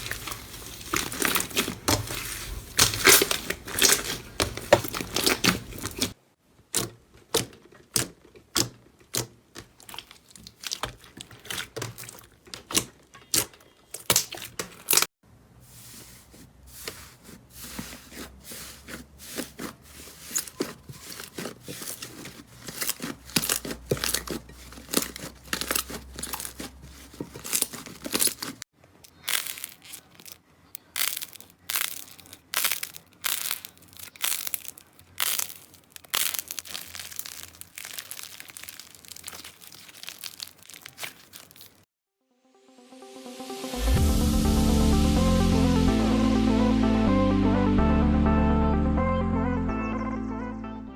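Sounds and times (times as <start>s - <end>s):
slime popping and crackling: 0.0s - 6.2s, 6.8s - 15.1s, 19.2s - 41.9s.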